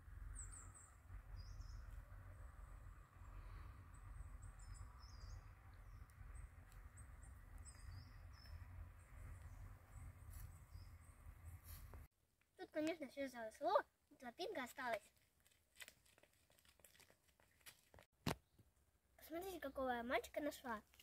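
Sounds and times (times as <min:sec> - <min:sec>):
small bird chirps: 0:00.2 - 0:02.2, 0:03.2 - 0:12.0.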